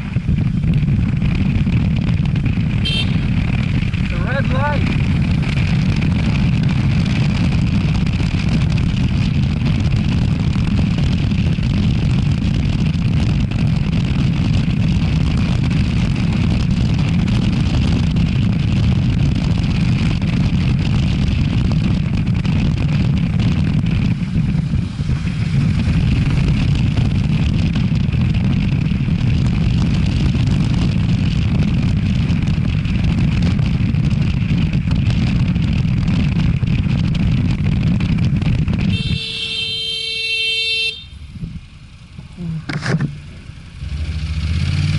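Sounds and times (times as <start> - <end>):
road and vehicle noise: 0.0 - 44.9
wind buffeting microphone: 0.0 - 44.9.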